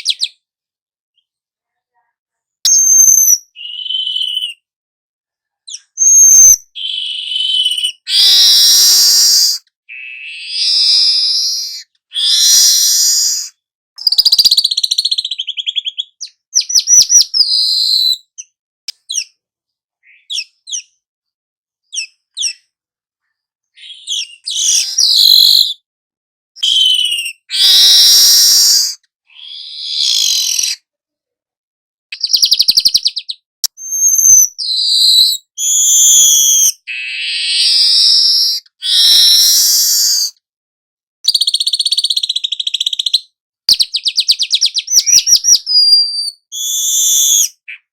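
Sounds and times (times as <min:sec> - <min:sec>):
bird singing buzzy trills and chirps: 0:02.7 - 0:04.6.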